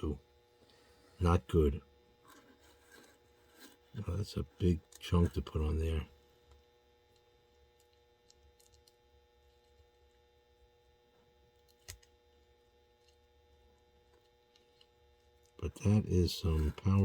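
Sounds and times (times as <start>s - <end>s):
low electrical hum: 0.0s - 17.0s
faint small clicks: 7.8s - 9.0s.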